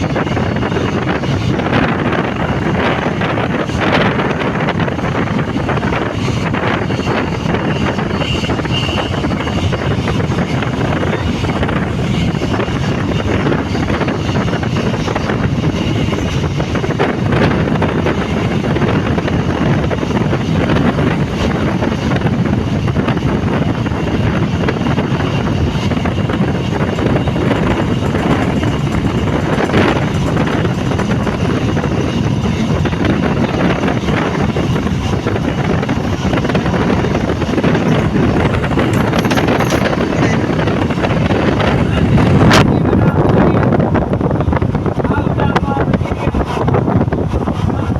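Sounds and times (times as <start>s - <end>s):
wind noise on microphone: 0.0s - 47.9s
vehicle rumble: 33.2s - 44.9s.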